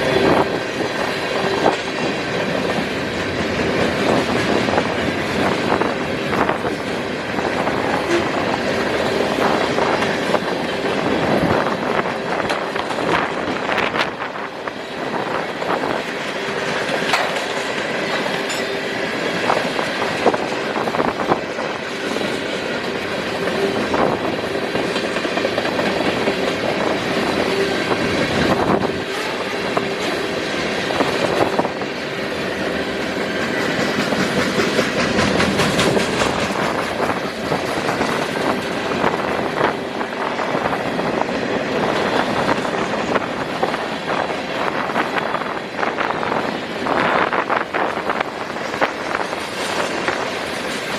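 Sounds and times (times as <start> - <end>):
high tone from train wheels: 0.0 - 50.9
train wheels clacking on rail joints: 0.0 - 50.9.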